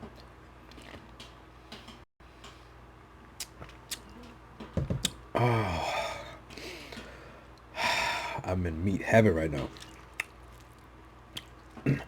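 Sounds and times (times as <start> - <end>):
person chewing meat: 0.2 - 1.3, 3.3 - 4.2, 9.8 - 12.0
wet mouth clicks: 3.4 - 4.1, 10.1 - 10.4
person sighing oh: 5.4 - 6.4.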